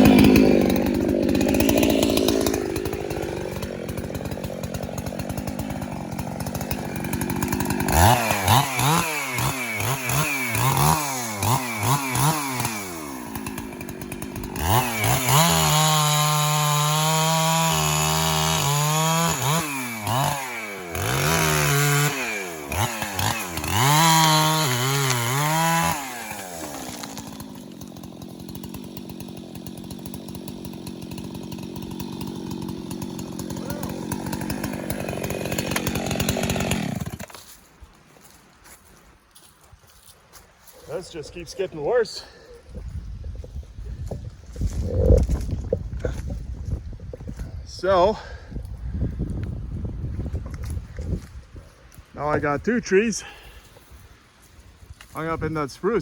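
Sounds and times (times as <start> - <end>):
chainsaw engine revving: 0.0 - 37.4, 53.1 - 53.6.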